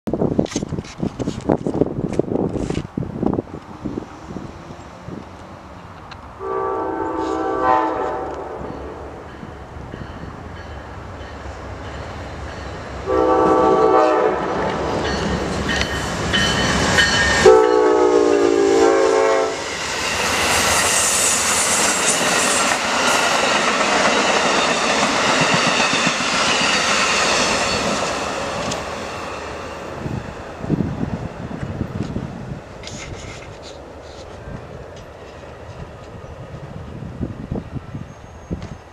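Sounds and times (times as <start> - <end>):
train wheels clickety-clack on rails: 0.2 - 6.4, 7.2 - 37.8, 38.4 - 38.9
train horn blasts: 6.4 - 9.2, 13.0 - 15.0, 17.4 - 19.7.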